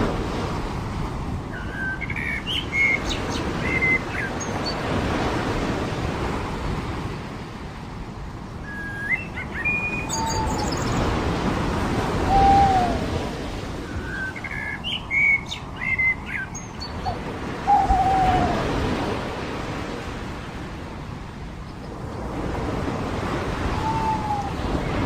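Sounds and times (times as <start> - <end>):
surf washing on a beach: 0.0 - 25.0
higher bird chirps: 8.7 - 11.1.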